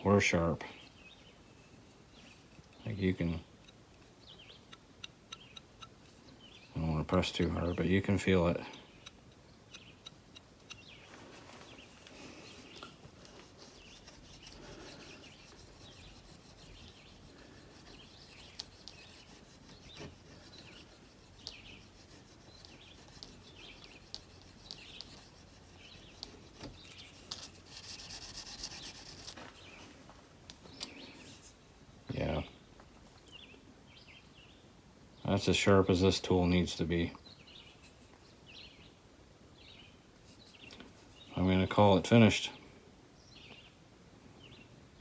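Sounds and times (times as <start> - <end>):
bird chirps: 2.1 - 13.0
steel gouge edge rubbing and scraping: 4.7 - 29.4.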